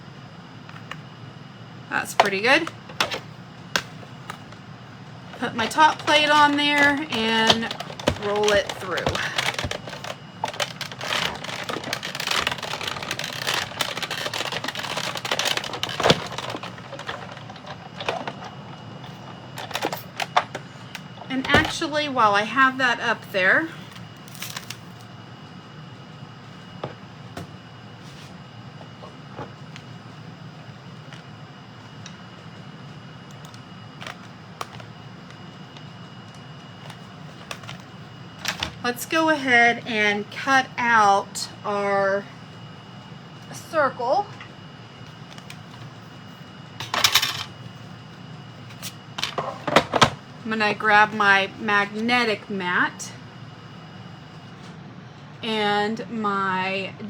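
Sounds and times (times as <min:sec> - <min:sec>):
die-cutting machine clicking and rattling: 0:05.4 - 0:18.4.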